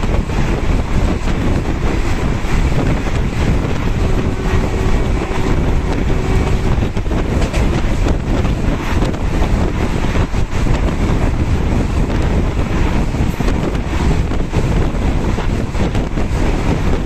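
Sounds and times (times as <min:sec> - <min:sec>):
train rumbling on track: 0:00.0 - 0:17.0
wind buffeting microphone: 0:00.0 - 0:17.0.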